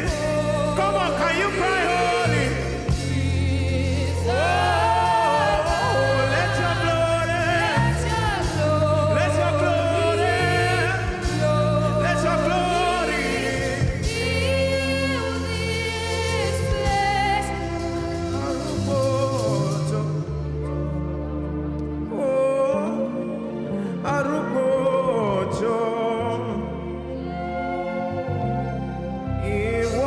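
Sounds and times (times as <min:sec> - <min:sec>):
bass chords: 0:00.0 - 0:22.1
wordless melismatic singing: 0:00.0 - 0:30.0.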